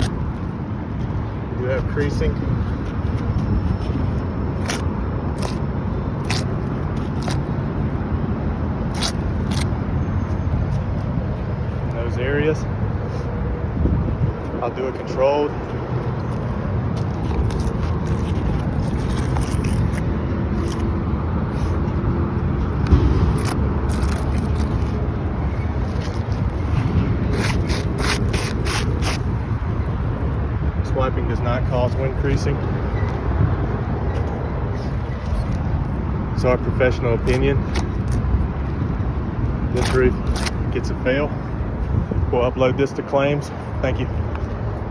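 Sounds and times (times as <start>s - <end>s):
low outdoor rumble: 0.0s - 44.9s
shingles scraping and crackling: 17.0s - 20.9s.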